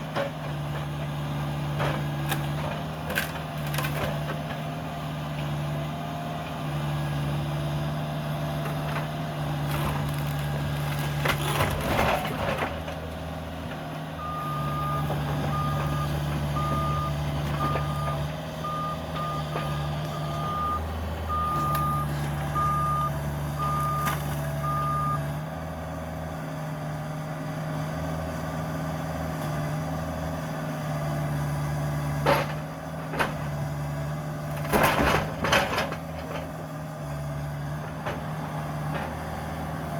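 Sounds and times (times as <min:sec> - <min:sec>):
excavator diesel engine running: 0:00.0 - 0:39.9
debris crunching: 0:08.7 - 0:13.2
backup alarm beeping: 0:14.2 - 0:25.2.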